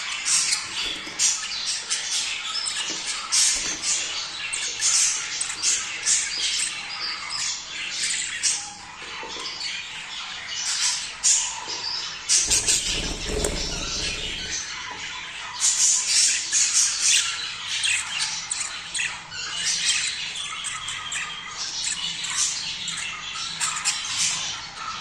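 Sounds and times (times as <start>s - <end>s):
budgies chattering: 0.3s - 8.6s, 12.3s - 14.6s.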